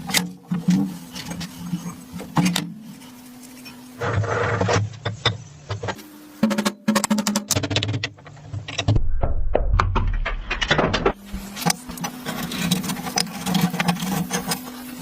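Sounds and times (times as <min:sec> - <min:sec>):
low steady hum: 0:08.2 - 0:14.2.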